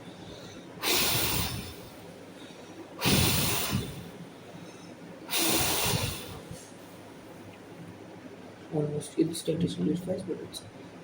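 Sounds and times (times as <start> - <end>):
person blowing hard: 0.8 - 1.8, 3.0 - 4.0, 5.3 - 6.4.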